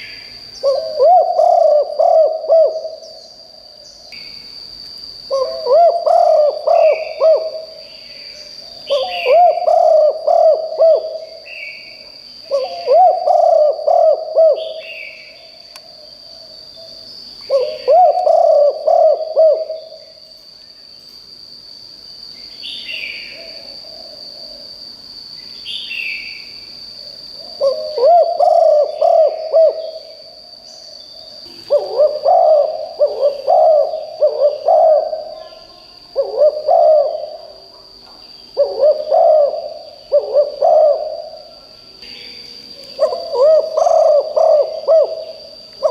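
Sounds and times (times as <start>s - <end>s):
dove cooing: 0.6s - 3.2s, 5.3s - 11.6s, 12.4s - 15.2s, 17.5s - 20.0s, 27.4s - 30.2s, 31.5s - 37.9s, 38.6s - 41.7s, 43.0s - 45.9s
bird chirps: 5.3s - 20.2s.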